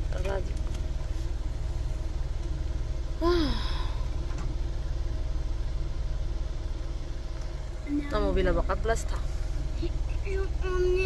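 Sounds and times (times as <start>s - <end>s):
car engine idling: 0.0s - 11.0s
person sighing: 3.2s - 4.1s.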